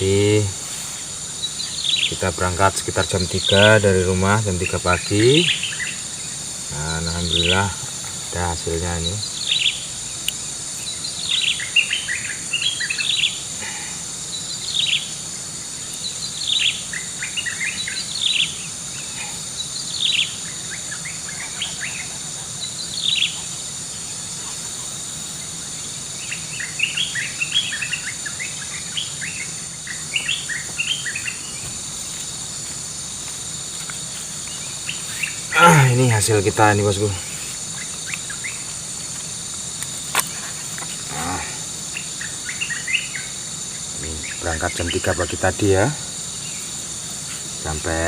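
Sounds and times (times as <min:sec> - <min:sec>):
high-pitched insect drone: 0:00.0 - 0:48.0
birds calling with falling note: 0:34.4 - 0:38.7.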